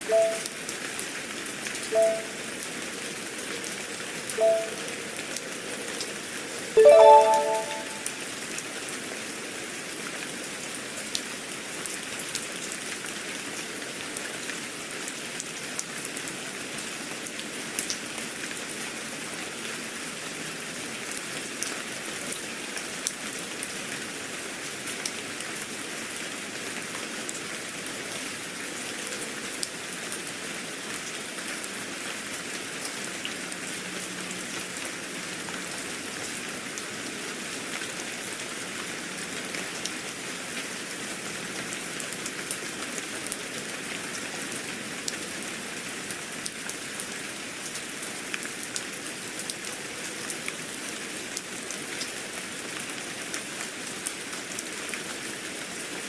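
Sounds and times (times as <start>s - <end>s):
electronic two-note beeps: 0.0s - 0.4s, 2.0s - 2.4s, 4.4s - 4.8s, 6.8s - 8.1s
steady rain falling: 0.0s - 56.0s
electronic chime: 0.1s - 0.4s, 2.0s - 2.3s, 4.4s - 4.8s, 6.8s - 8.0s.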